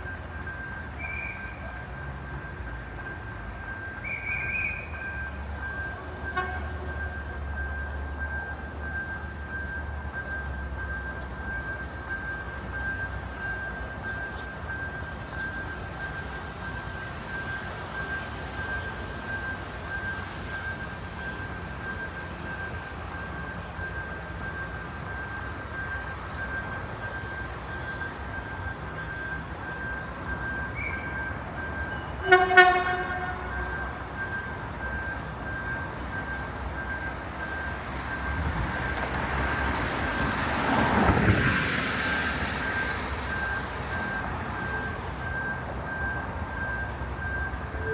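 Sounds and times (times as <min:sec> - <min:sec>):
street traffic: 0:00.0 - 0:47.9
car horn toot: 0:06.0 - 0:07.0, 0:32.0 - 0:33.7.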